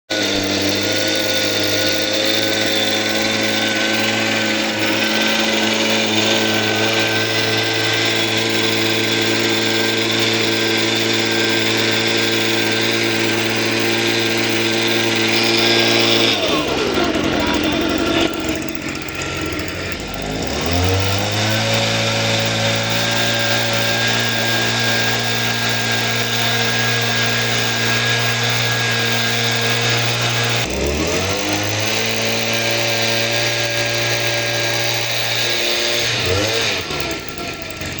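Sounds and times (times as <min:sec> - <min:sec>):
motor whining: 0:00.0 - 0:38.0.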